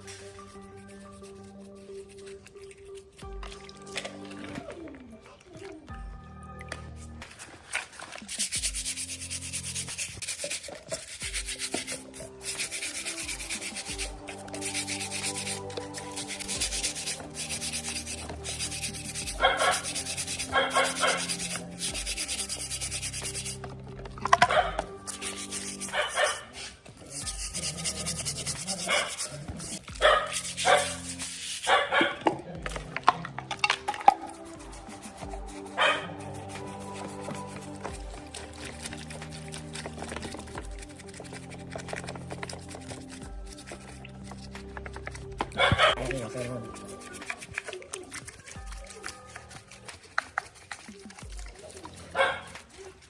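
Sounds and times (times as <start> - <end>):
background music: 0.0 - 53.0
abrasive sanding: 8.2 - 23.7, 24.5 - 31.9, 34.2 - 53.0
dog barking: 19.4 - 21.4, 24.4 - 24.9, 25.9 - 26.5, 28.8 - 29.2, 30.0 - 31.0, 31.6 - 32.3, 35.8 - 36.1, 45.6 - 46.0, 52.1 - 52.6.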